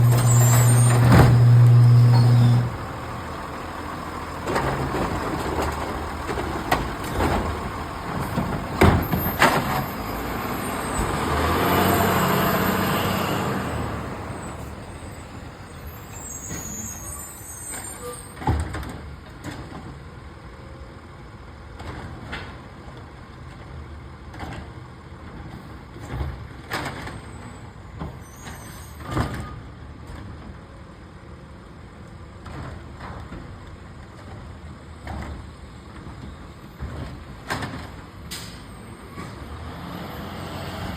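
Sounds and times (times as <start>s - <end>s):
garbage truck engine running: 0.0s - 17.0s.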